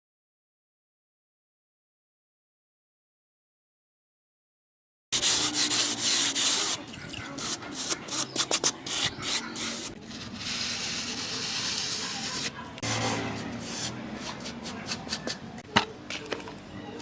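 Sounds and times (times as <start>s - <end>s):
scraping on hard surface: 5.2s - 16.6s.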